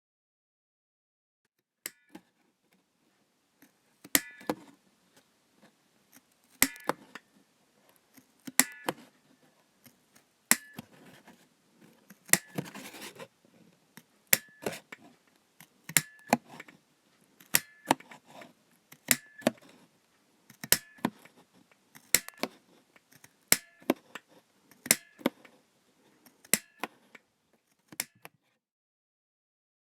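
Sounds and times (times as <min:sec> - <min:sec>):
ticket punch metallic snaps: 0:04.0 - 0:04.7, 0:06.5 - 0:07.2, 0:08.4 - 0:09.1, 0:10.5 - 0:11.0, 0:12.2 - 0:13.0, 0:14.3 - 0:14.8, 0:15.9 - 0:16.6, 0:17.4 - 0:18.1, 0:20.5 - 0:21.2, 0:22.0 - 0:22.6, 0:23.2 - 0:24.0, 0:24.8 - 0:25.4, 0:26.4 - 0:26.9, 0:27.9 - 0:28.3.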